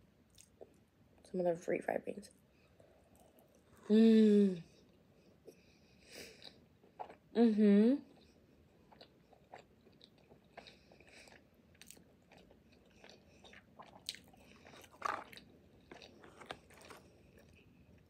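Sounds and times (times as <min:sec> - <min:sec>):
wet chewing mouth sounds: 0:08.9 - 0:17.8.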